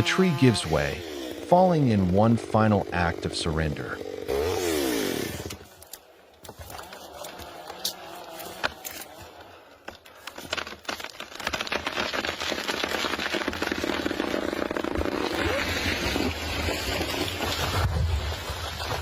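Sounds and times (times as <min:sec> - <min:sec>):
branches crackling and snapping: 0:04.3 - 0:19.0
tree trunk hitting ground: 0:05.4 - 0:19.0.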